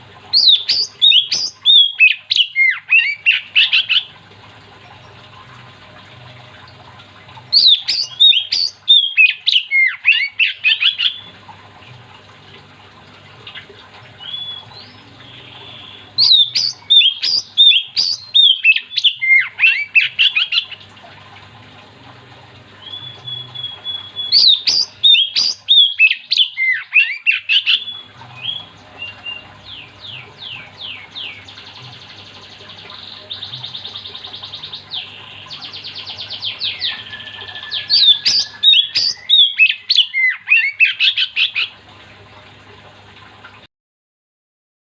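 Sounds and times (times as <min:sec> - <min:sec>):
bird singing whistled phrases: 0:00.4 - 0:04.0, 0:07.6 - 0:11.3, 0:14.2 - 0:20.4, 0:22.8 - 0:31.4, 0:33.2 - 0:41.5.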